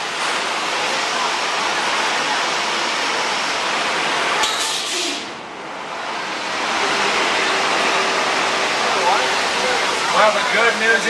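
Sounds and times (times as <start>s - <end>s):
rushing flood water: 6.4s - 11.0s.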